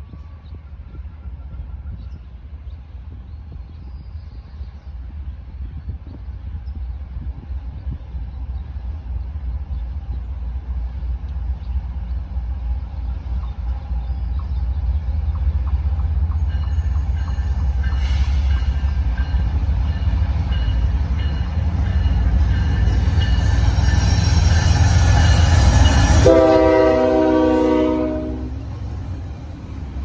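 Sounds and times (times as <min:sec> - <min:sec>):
freight train rumbling by: 0:00.0 - 0:30.0.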